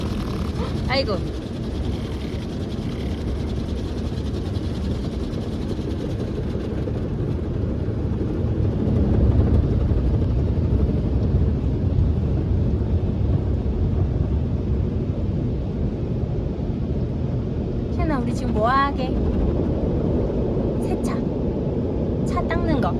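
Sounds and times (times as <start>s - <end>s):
car wash machinery rumble: 0.0s - 17.0s.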